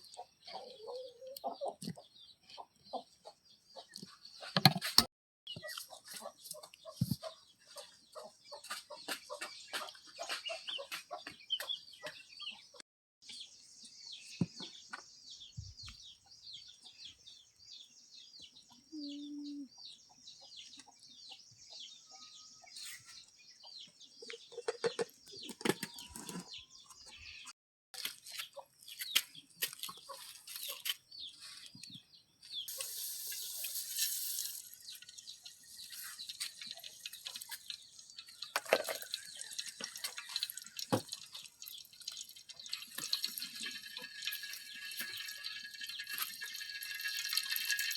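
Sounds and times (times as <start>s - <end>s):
chickens clucking: 0.0s - 4.6s, 5.5s - 12.8s, 18.7s - 26.9s.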